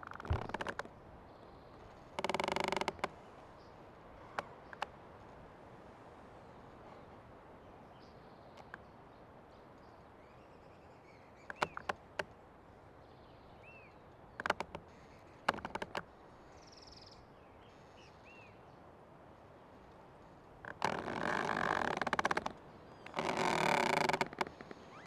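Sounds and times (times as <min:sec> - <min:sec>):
old tree creaking: 0:00.0 - 0:01.0, 0:01.7 - 0:03.3, 0:11.4 - 0:12.3, 0:14.3 - 0:16.2, 0:20.6 - 0:25.0
faint forest background: 0:00.0 - 0:25.0.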